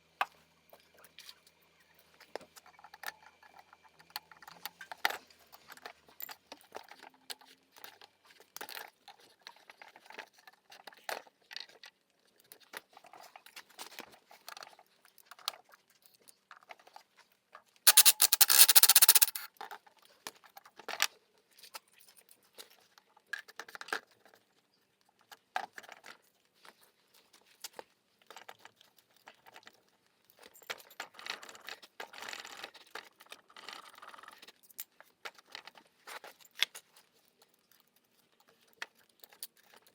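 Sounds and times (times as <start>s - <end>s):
small tool clicks and metal taps: 17.9s - 19.5s.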